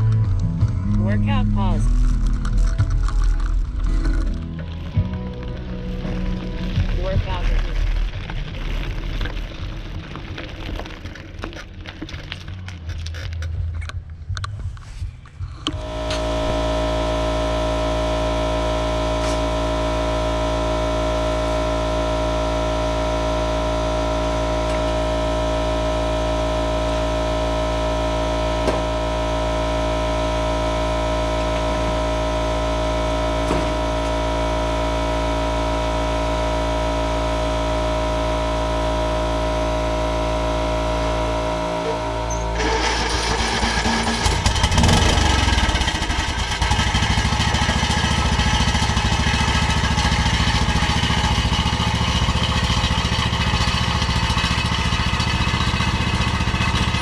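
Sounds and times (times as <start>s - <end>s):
machine humming steadily: 13.5s - 57.0s.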